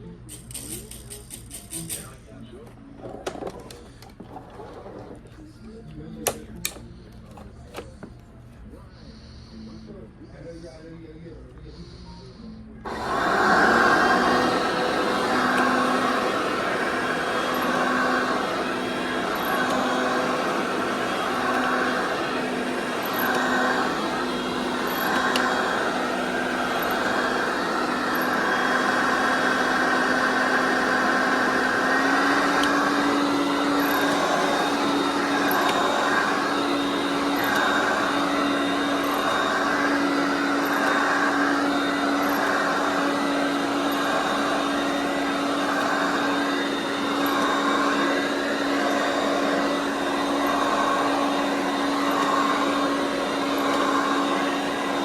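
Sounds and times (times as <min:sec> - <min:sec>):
upright vacuum cleaner running: 0:03.0 - 0:05.4, 0:12.8 - 0:55.0.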